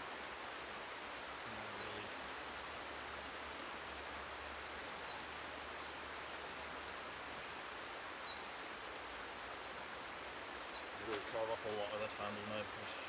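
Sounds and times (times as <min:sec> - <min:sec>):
river flowing: 0:00.0 - 0:13.0
small bird chirping: 0:10.4 - 0:11.3.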